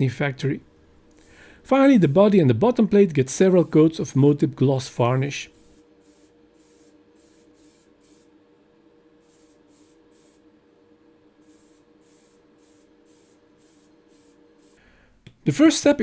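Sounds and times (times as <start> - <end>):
aerosol spray can hissing: 5.4 - 8.5, 9.1 - 10.6, 11.3 - 14.9.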